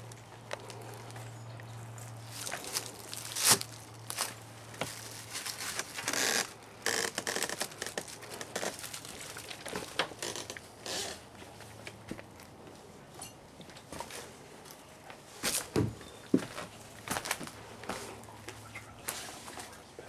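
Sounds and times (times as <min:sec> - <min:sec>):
crunching and rustling through debris: 0:00.0 - 0:12.6.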